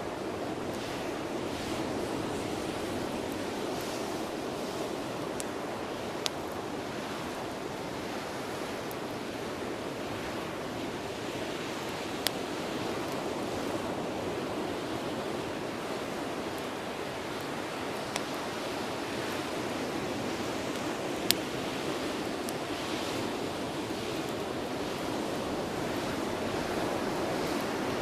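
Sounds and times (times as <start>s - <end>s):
bonfire rushing noise: 0.0s - 28.0s
burning wood popping: 0.5s - 7.9s, 16.4s - 28.0s.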